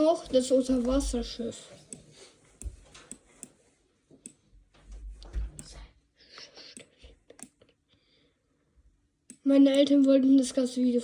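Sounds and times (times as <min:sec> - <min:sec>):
computer mouse clicks: 0:09.3 - 0:10.2
keyboard clicks: 0:09.3 - 0:10.2.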